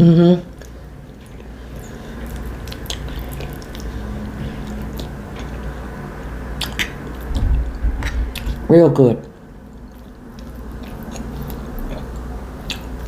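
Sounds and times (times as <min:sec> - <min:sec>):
person chewing food: 0:00.4 - 0:13.0
wet mouth clicks: 0:00.6 - 0:03.9, 0:06.6 - 0:07.3, 0:09.8 - 0:13.0.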